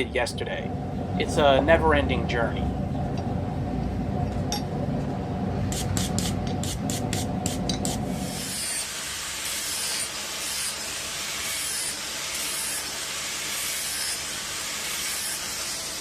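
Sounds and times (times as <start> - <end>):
forge hissing: 5.6 - 16.0.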